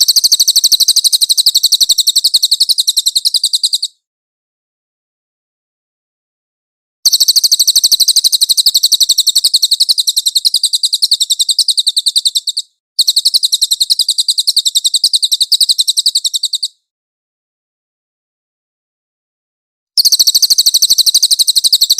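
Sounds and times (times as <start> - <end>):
songbird fast high trills: 20.0 - 21.9.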